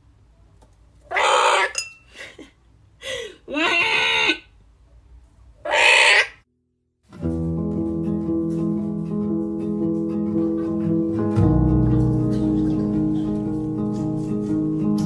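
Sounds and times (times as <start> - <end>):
bird screeching: 1.1 - 1.8, 5.6 - 6.4.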